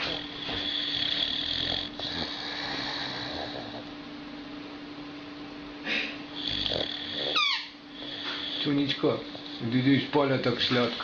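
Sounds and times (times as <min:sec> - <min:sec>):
dog breathing and snoring: 0:00.0 - 0:04.0, 0:05.9 - 0:11.0
dog snorting: 0:00.0 - 0:04.0, 0:05.9 - 0:11.0
electrical hum and hiss: 0:00.0 - 0:11.0.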